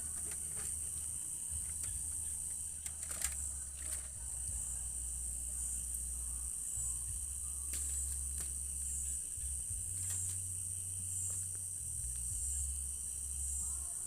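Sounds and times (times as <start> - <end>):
crickets chirring: 0.0 - 14.0
low hum: 0.0 - 14.0
sharp clicks: 1.6 - 4.2.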